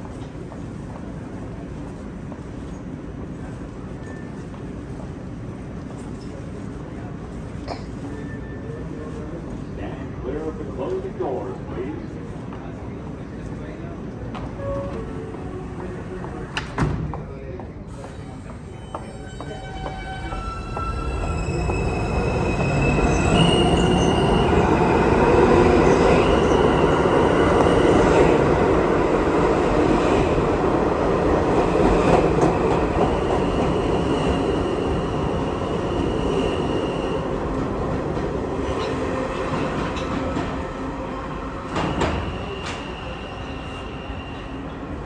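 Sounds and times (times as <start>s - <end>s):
train rumble: 0.0s - 45.0s
subway wheels squealing: 2.5s - 9.6s, 14.5s - 16.7s, 17.9s - 37.8s, 38.4s - 45.0s.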